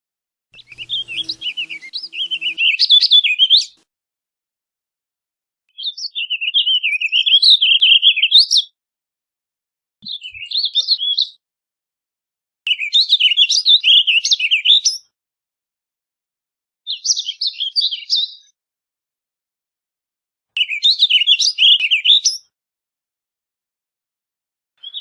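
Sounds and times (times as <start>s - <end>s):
songbird warbling: 0.6s - 3.8s.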